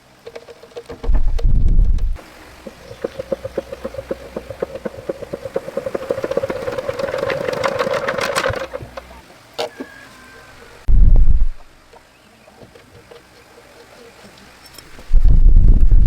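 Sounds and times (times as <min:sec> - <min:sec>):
tractor engine knocking: 0:02.0 - 0:09.2.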